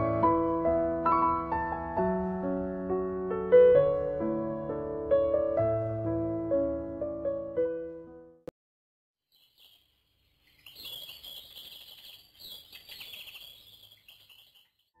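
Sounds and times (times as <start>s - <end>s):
birds chirping and trilling: 9.3s - 14.8s.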